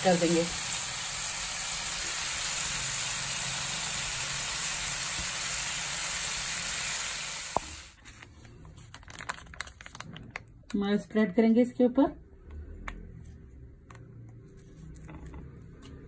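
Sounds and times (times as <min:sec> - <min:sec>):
stir-fry sizzling in pan: 0:00.0 - 0:08.0.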